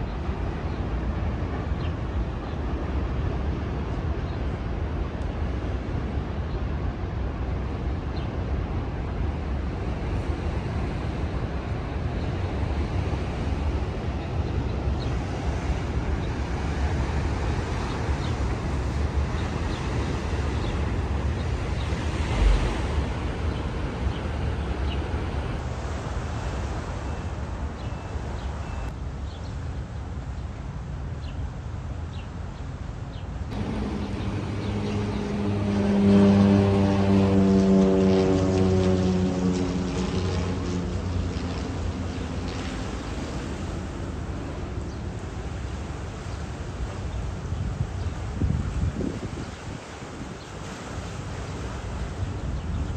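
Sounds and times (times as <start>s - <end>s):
city ambience: 0.0s - 52.9s
wind buffeting microphone: 8.6s - 28.9s, 33.5s - 52.9s
low droning tone: 33.6s - 42.5s.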